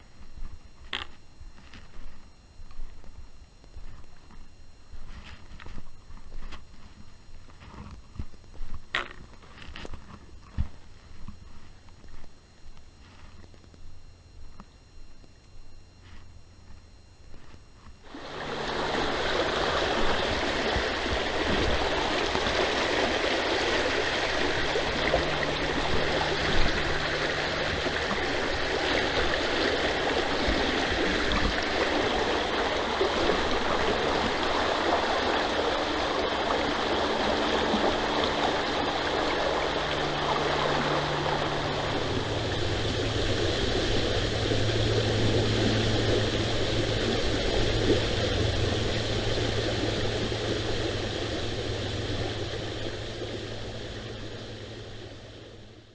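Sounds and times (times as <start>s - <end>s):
low steady hum: 0.0s - 55.9s
creek water rushing: 18.1s - 55.7s.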